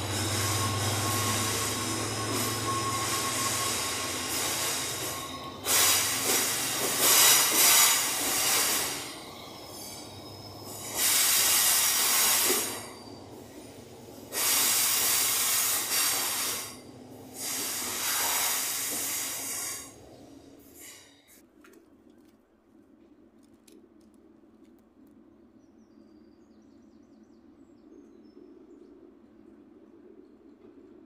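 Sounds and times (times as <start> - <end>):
wheels squealing and hissing: 0.0 - 21.4.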